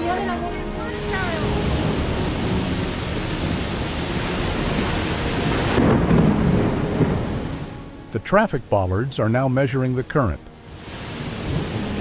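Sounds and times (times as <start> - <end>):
floodwater rushing: 0.0 - 12.0
low rumble: 0.3 - 12.0.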